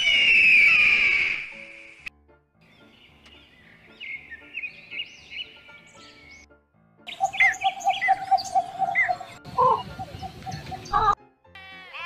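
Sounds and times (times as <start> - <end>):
birds chirping: 2.6 - 6.5, 7.1 - 11.2.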